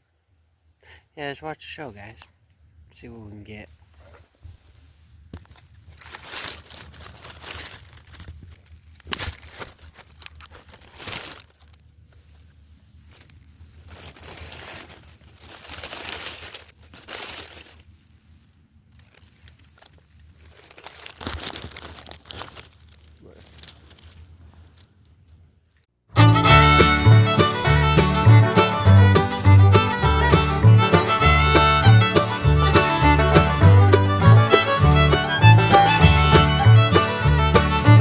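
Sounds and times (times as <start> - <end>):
rustling and crinkling: 3.7 - 25.9.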